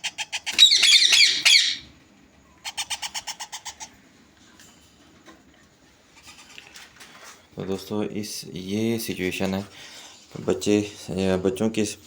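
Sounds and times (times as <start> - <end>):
parakeet chicks squawking: 0.0 - 1.9, 2.6 - 4.0.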